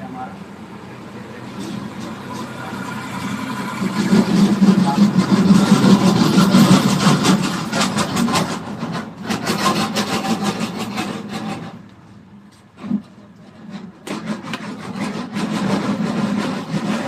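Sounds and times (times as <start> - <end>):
rapid rubbing and scraping strokes: 1.5 - 11.8, 12.8 - 17.0.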